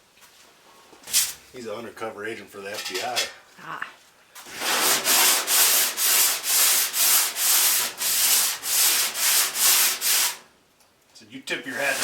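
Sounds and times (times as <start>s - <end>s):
sandpaper rubbing back and forth: 4.5s - 10.4s, 11.6s - 12.0s.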